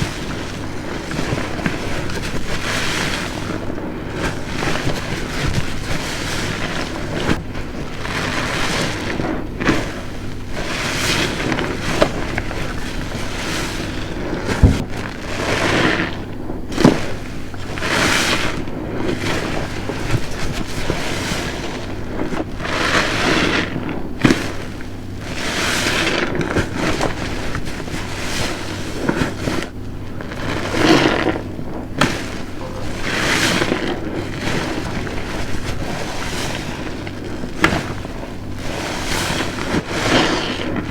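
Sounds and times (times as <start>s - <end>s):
sponge squelching: 0.0s - 40.9s
sharp thuds: 10.7s - 15.7s.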